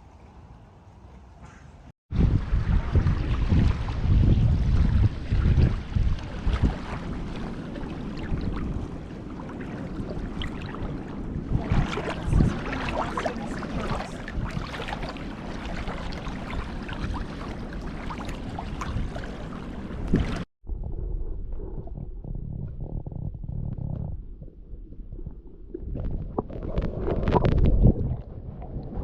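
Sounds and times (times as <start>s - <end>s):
wind buffeting microphone: 2.1s - 29.0s
water wash: 2.2s - 20.5s.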